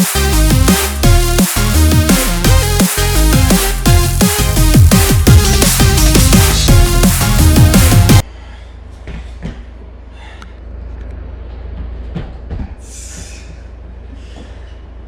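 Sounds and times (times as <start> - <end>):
steady low rumble: 0.4 - 9.0.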